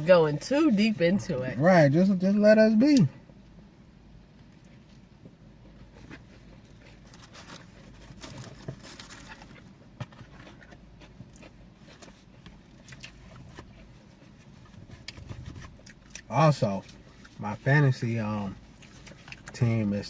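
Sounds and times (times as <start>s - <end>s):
chewing and mouth sounds: 4.5s - 17.4s, 18.6s - 19.6s.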